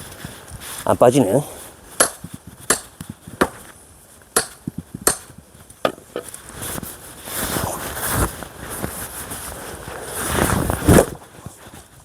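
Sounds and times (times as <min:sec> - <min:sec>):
axe striking a log: 0:02.0 - 0:03.6, 0:04.4 - 0:06.3.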